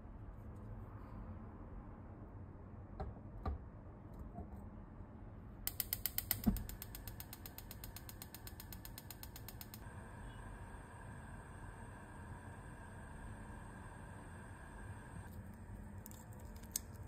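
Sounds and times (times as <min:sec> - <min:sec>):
mechanical clicks: 0:05.7 - 0:09.8
ratchet-like clicking: 0:05.7 - 0:09.8.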